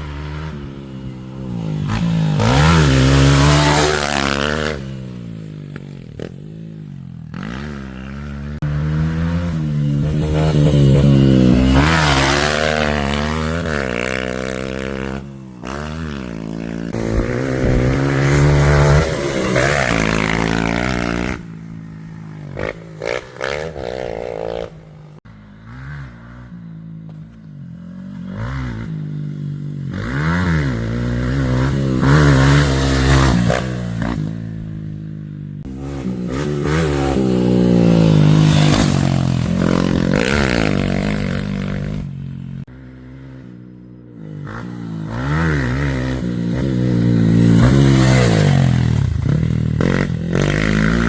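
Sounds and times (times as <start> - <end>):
motocross bike engine revving: 0.0 - 27.0, 27.6 - 51.0.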